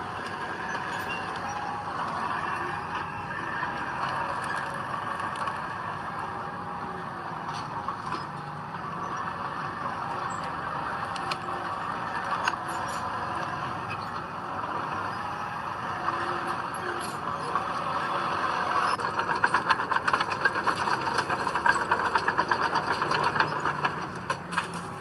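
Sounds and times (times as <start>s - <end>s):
heavy diesel machinery running: 0.0s - 25.0s
sharp clicks and clanks: 18.8s - 25.0s.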